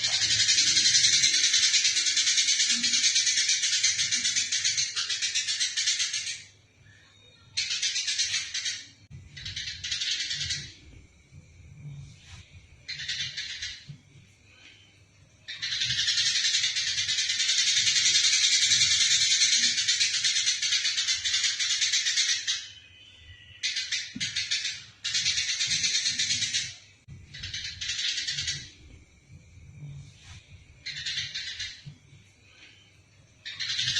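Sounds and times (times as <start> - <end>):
sparrows chattering: 0.0 - 6.5, 12.9 - 14.0, 15.5 - 28.9, 30.8 - 31.9, 33.4 - 33.9.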